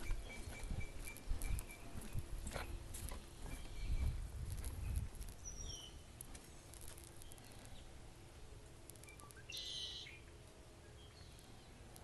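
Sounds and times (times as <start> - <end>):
bird chirps: 0.0 - 2.8, 4.8 - 7.9, 9.0 - 11.7
wind on microphone: 0.0 - 5.9
loud bird call: 9.4 - 10.2.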